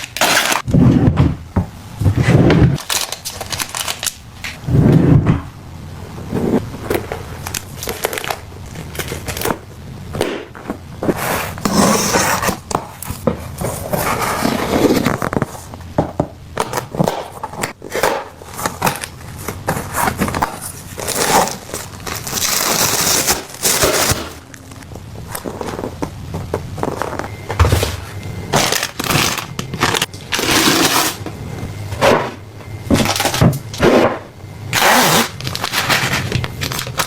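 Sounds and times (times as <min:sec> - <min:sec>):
plastic packaging crinkling: 0:00.0 - 0:00.7, 0:02.8 - 0:04.6, 0:07.0 - 0:09.7, 0:17.9 - 0:31.2, 0:34.7 - 0:37.0.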